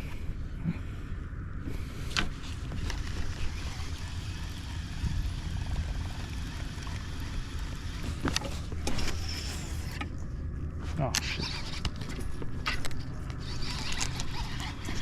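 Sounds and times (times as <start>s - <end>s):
water and wind rumble: 0.1s - 8.9s.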